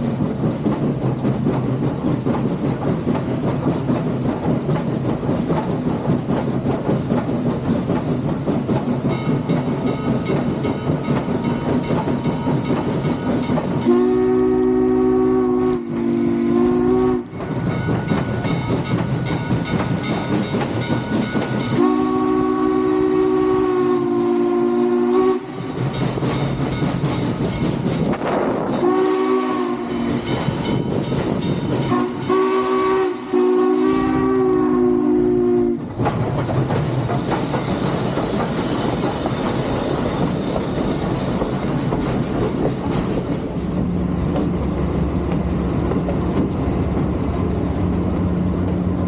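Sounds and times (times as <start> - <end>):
train rumble: 0.0 - 49.0
steam locomotive chime whistle: 9.1 - 17.3, 17.9 - 27.9, 28.6 - 35.8.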